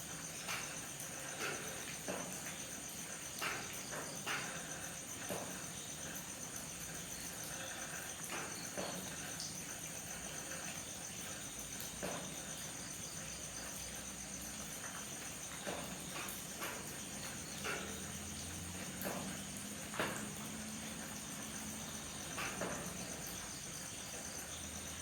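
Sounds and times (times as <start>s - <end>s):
crickets chirring: 0.0s - 25.0s
light rain hiss: 0.0s - 25.0s
water drips: 0.0s - 25.0s.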